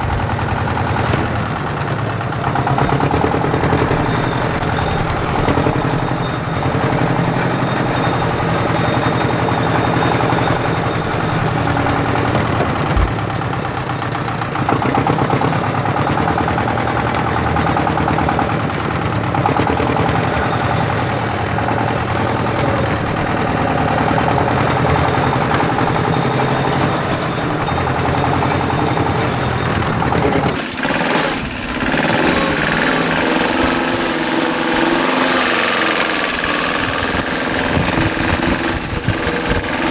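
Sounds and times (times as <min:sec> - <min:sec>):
engine knocking steadily: 0:00.0 - 0:39.9.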